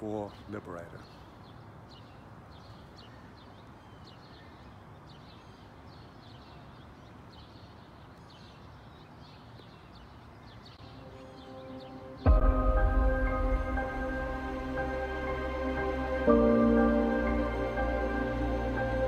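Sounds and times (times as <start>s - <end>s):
small birds chirping: 0.0s - 12.5s.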